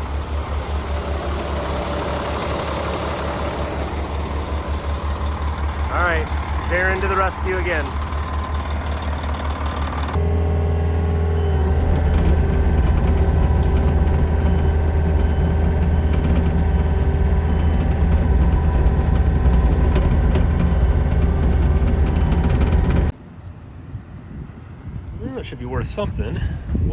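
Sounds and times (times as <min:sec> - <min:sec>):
engine running loudly: 0:00.0 - 0:23.1.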